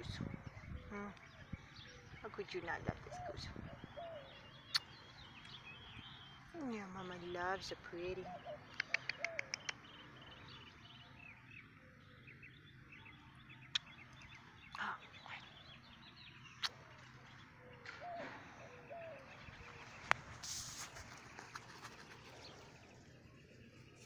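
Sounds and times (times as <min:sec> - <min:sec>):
small birds chirping: 0:00.0 - 0:24.0
sharp clicks: 0:08.7 - 0:09.8
rustle: 0:19.4 - 0:24.0.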